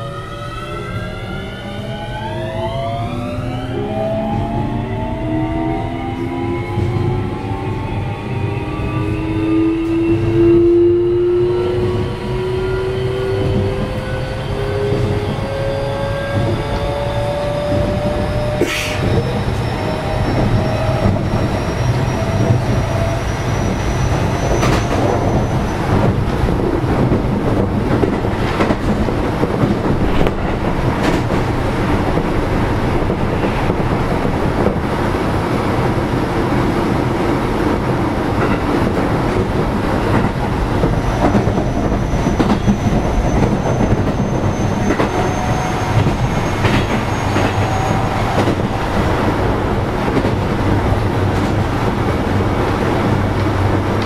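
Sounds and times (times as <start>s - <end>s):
train rolling noise: 0.0s - 54.0s.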